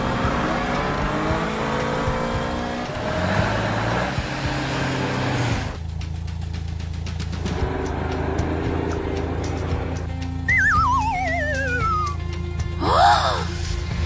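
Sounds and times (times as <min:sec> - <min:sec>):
cartoon racing car revving: 0:00.0 - 0:05.8, 0:07.4 - 0:12.2
low engine hum: 0:00.0 - 0:14.0.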